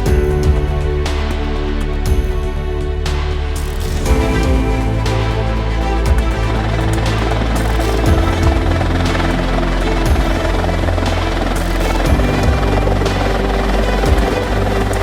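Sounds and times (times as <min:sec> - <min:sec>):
background music with beat: 0:00.0 - 0:15.0.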